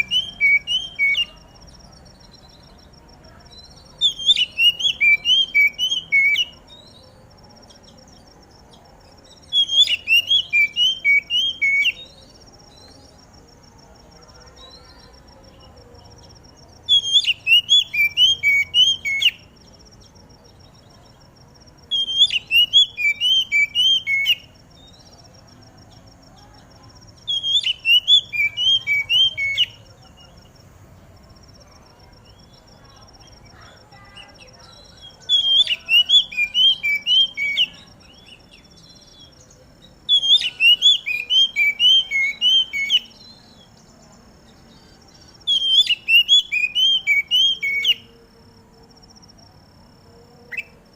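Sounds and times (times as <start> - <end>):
bird singing whistled phrases: 0.0 - 1.6, 3.5 - 7.0, 9.3 - 13.0, 16.9 - 19.6, 21.9 - 25.1, 27.2 - 30.3, 32.2 - 39.4, 40.0 - 43.8, 44.8 - 48.1.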